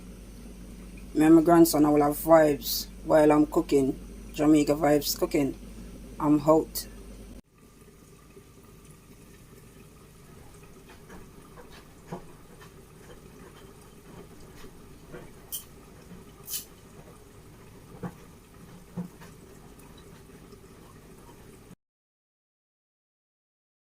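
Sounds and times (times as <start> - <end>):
low steady hum: 0.0 - 21.8
faint clicks and taps: 10.5 - 16.3, 17.9 - 20.4.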